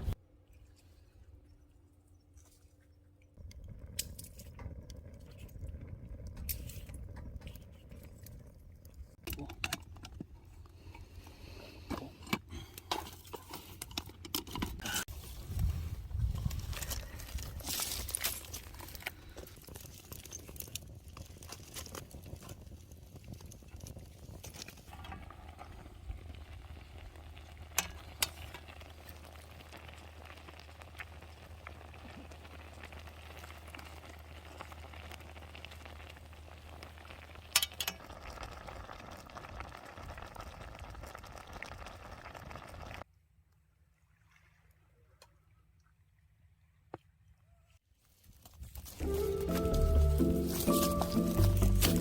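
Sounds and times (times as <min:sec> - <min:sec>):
food sizzling: 0:49.0 - 0:52.0.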